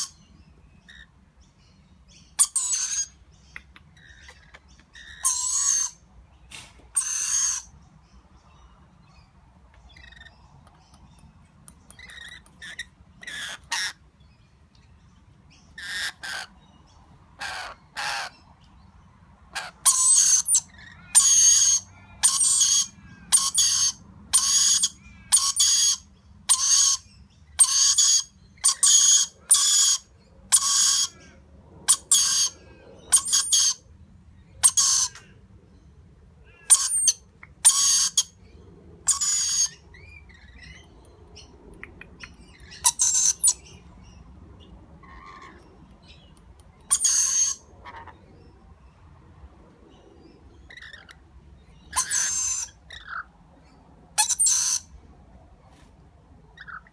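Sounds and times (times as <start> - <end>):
parrots giving harsh calls: 2.4 - 3.2, 4.0 - 6.0, 6.9 - 7.7, 12.0 - 14.0, 15.8 - 16.6, 17.4 - 18.4, 19.5 - 33.8, 34.6 - 35.4, 36.4 - 38.4, 39.0 - 40.8, 42.5 - 43.7, 45.0 - 45.7, 46.8 - 48.3, 50.6 - 51.3, 51.9 - 53.3, 54.2 - 54.9.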